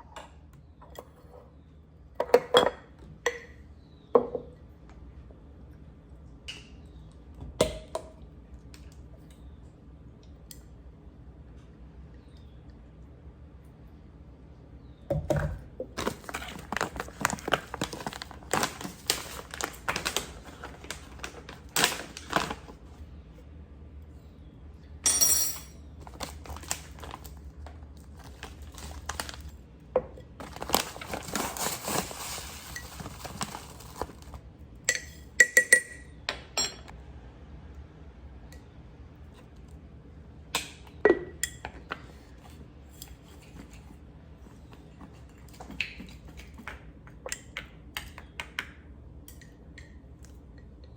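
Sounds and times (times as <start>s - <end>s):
packaging crinkling: 16.0s - 23.0s, 26.0s - 29.6s, 30.4s - 34.4s.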